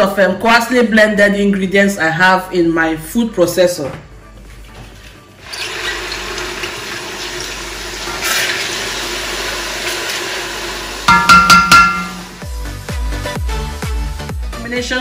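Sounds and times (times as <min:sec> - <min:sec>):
vegetables sizzling in oil: 0:05.4 - 0:13.6
spatula clanking against pot: 0:11.1 - 0:12.4.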